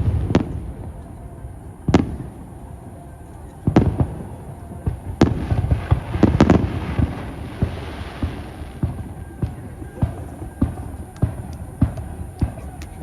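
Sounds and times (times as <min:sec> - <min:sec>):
small firework pops: 0:03.4 - 0:13.0
firework shells booming: 0:03.6 - 0:13.0.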